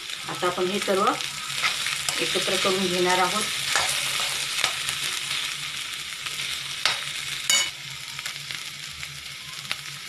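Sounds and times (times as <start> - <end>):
food sizzling in hot oil: 0.0 - 10.0
metal spatula stirring: 1.4 - 5.5
spatula clinking against pan: 6.8 - 7.7.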